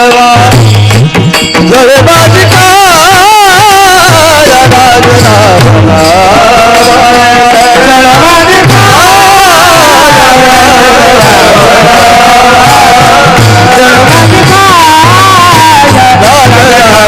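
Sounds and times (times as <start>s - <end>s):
steady drum beat: 0.0s - 17.0s
sustained instrumental accompaniment: 0.0s - 17.0s.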